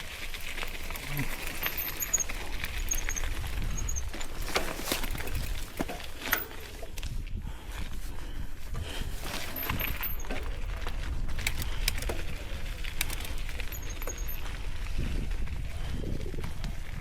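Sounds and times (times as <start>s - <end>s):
bike rattling and clicking: 0.0s - 17.0s
high squeaks: 1.0s - 5.4s, 9.2s - 10.6s, 13.1s - 14.6s
wind buffeting microphone: 1.8s - 17.0s.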